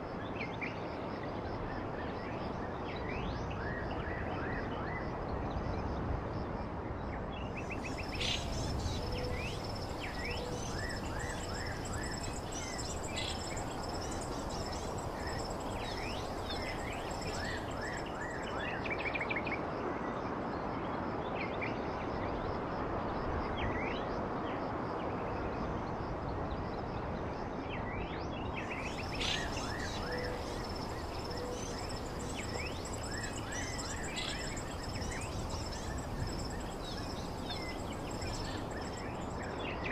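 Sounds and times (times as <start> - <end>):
steady background hiss: 7.6 - 19.2, 28.6 - 39.9
birds chirping and trilling: 7.8 - 18.5, 28.7 - 39.6.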